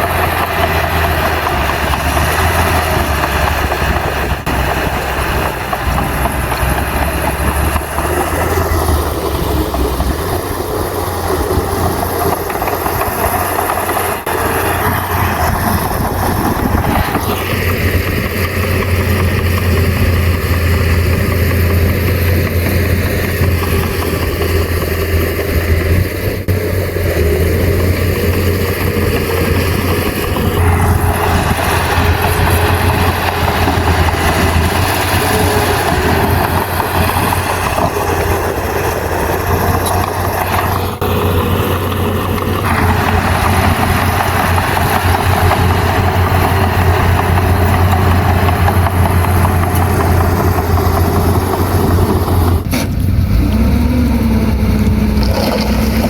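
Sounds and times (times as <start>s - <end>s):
bulldozer diesel engine droning: 0.0s - 56.0s.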